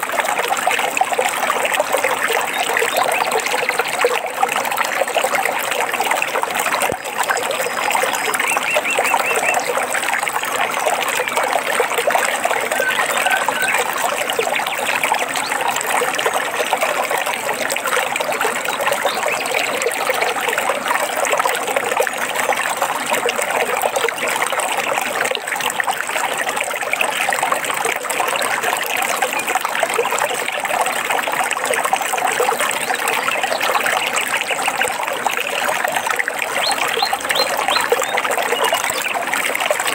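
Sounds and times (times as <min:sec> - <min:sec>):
stream trickling and babbling: 0:00.0 - 0:39.9.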